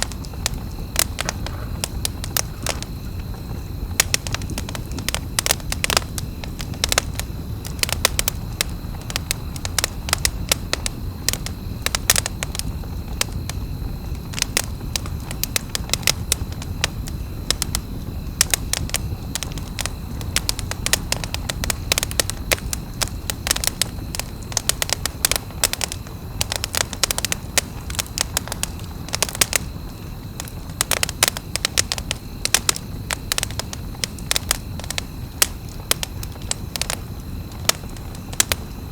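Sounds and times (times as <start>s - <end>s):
campfire crackling and popping: 0.0s - 38.9s
low rumble of fire: 0.0s - 38.9s.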